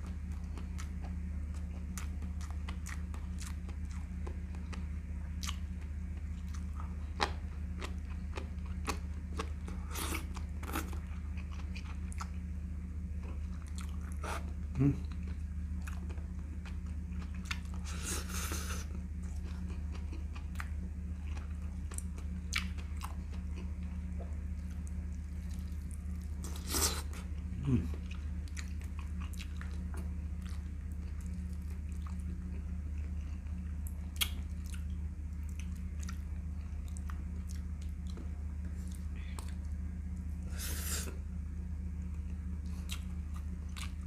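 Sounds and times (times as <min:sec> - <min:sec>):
person chewing with wet mouth sounds: 0:00.0 - 0:12.4, 0:13.2 - 0:41.2, 0:42.0 - 0:44.0
steady low hum: 0:00.0 - 0:44.0
lip smacks: 0:34.2 - 0:34.8.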